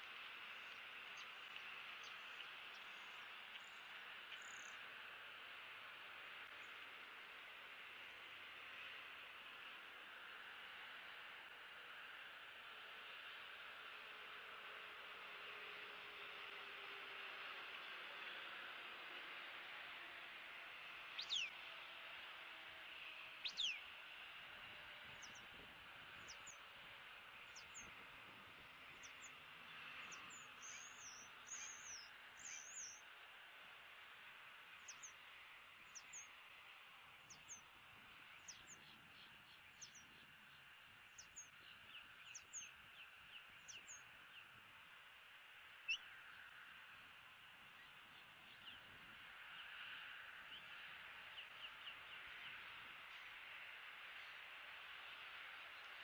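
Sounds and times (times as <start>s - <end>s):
down-sweeping bird whistles: 23.4s - 23.8s, 30.0s - 33.0s
high bird calls: 30.0s - 33.0s.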